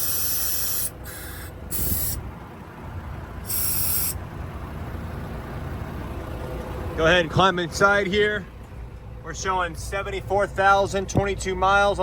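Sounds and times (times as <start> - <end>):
air seat hissing: 0.0 - 2.3, 3.4 - 4.2
low steady rumble: 0.0 - 12.0.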